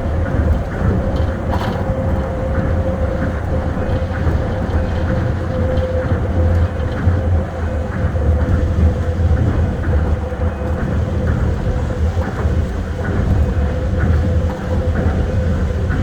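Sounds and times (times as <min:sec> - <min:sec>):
monorail train rumbling: 0:00.0 - 0:16.0.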